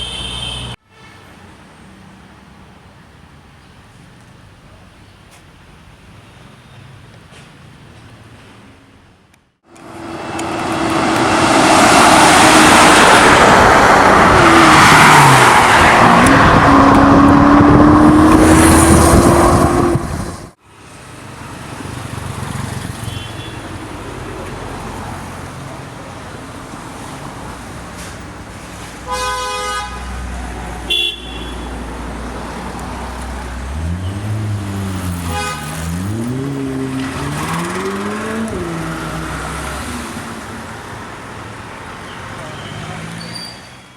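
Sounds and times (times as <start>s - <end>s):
car horn: 0.0s - 1.4s, 23.0s - 23.7s, 29.0s - 31.9s, 35.2s - 36.3s
street traffic: 0.0s - 43.9s
engine revving: 9.7s - 20.5s, 33.4s - 40.2s
car engine under hard throttle: 9.7s - 20.6s, 32.0s - 41.4s.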